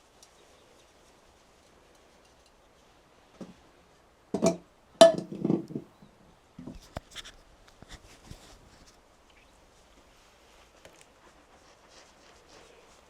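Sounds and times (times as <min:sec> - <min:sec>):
hard objects knocking and clinking: 0:04.4 - 0:05.9.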